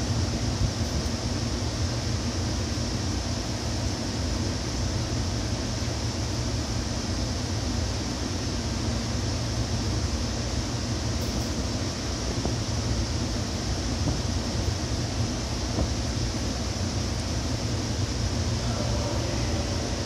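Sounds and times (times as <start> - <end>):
train wheels rumbling on rail: 11.1 - 20.0.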